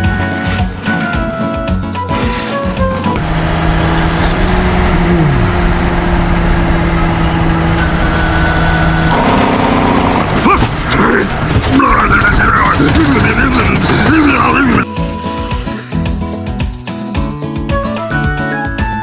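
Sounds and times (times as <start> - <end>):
vehicle engine hum: 1.5 - 15.6
short falling whine: 3.2 - 10.3.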